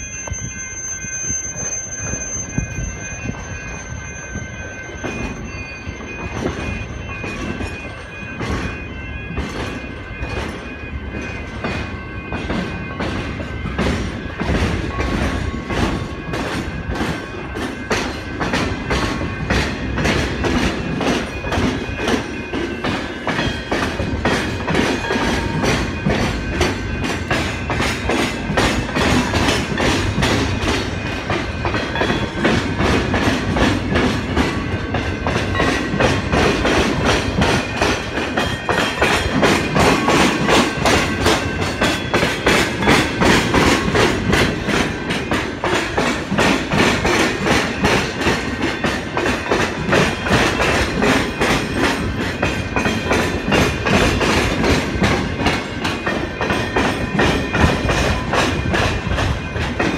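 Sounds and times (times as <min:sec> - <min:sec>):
faint high wheel squeal: 0:00.0 - 0:08.3
wheels clacking over rail joints: 0:01.5 - 0:59.9.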